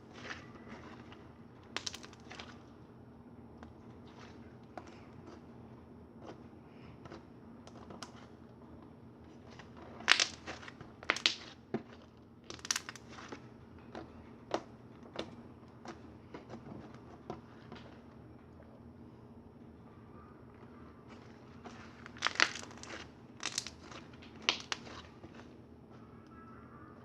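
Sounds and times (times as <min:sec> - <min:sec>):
slime squishing and popping: 0:00.1 - 0:02.6, 0:09.7 - 0:13.4, 0:21.8 - 0:25.4.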